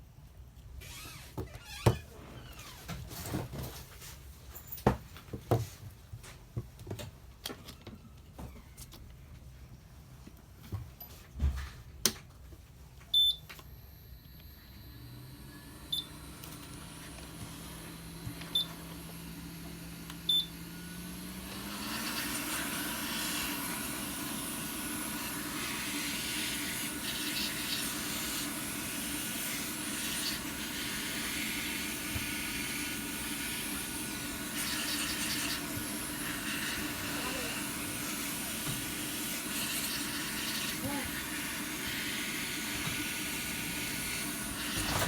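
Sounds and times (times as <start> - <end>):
blower humming: 13.6 - 45.0.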